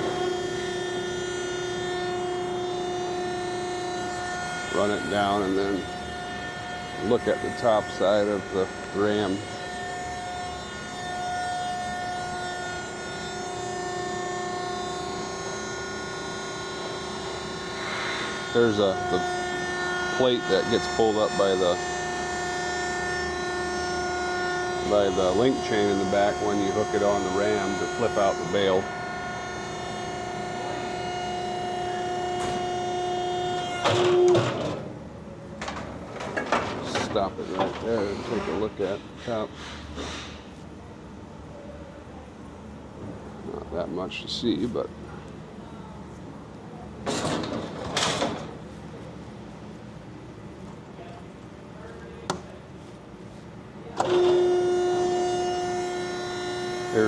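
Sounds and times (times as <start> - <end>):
hydraulic motor and pump humming: 0.0 - 57.0.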